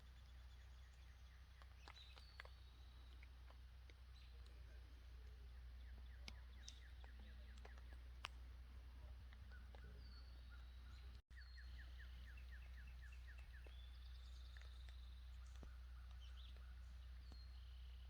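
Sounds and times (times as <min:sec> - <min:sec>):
steady low hum: 0:00.0 - 0:18.0
birds whistling calls: 0:09.4 - 0:18.0.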